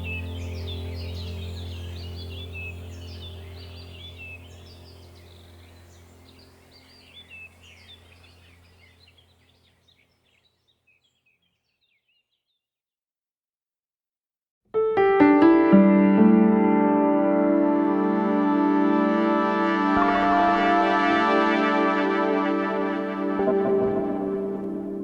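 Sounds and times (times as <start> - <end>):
low steady hum: 0.0 - 9.7, 19.0 - 25.0
birds chirping: 0.0 - 12.6
loud music with piano and brass: 16.5 - 25.0.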